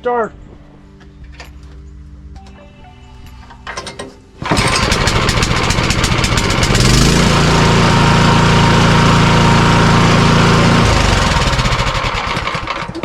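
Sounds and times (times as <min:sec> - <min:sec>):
tiller engine revving: 0:04.4 - 0:13.0.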